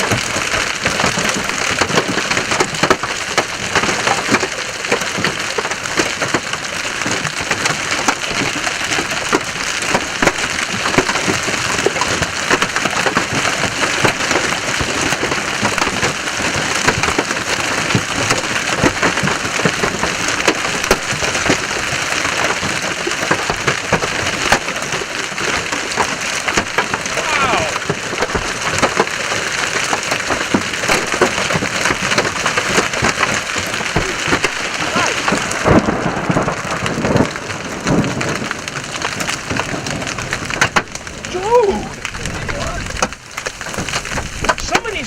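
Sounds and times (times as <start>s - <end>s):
hailstones pelting a vehicle: 0.0s - 45.0s
heavy rain hiss: 24.8s - 45.0s.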